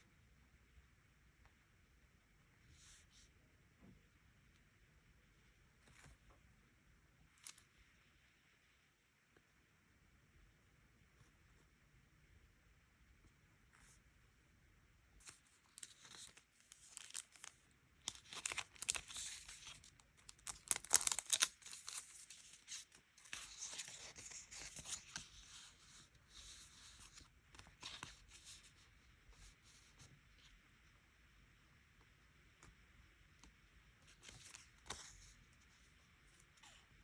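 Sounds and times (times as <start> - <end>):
paper tearing and crinkling: 15.7 - 17.5, 18.1 - 25.6.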